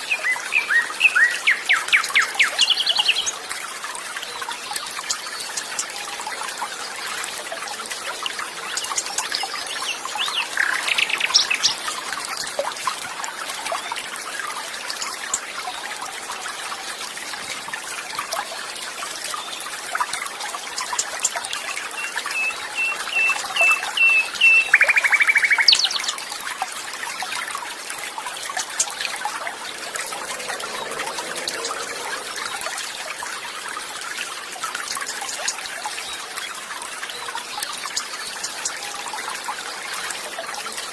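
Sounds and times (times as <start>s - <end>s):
water trickling: 0.0s - 40.9s
birds calling with trills: 20.8s - 26.3s.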